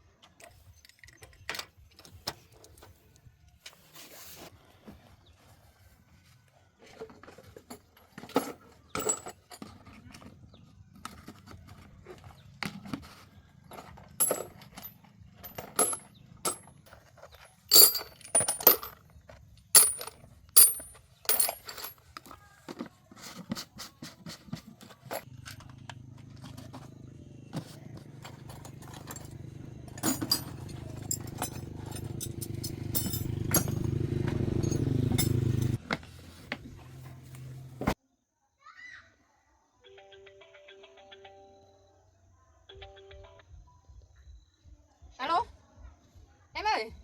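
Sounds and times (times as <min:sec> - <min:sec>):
metal tools clinking and tapping: 0:07.2 - 0:10.3, 0:13.7 - 0:22.9, 0:24.8 - 0:26.9, 0:27.6 - 0:35.8.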